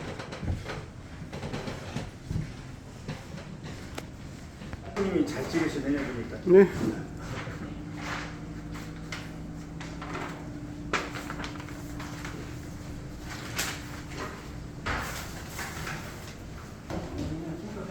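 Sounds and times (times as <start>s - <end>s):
knocks and clatters: 0.0s - 4.8s.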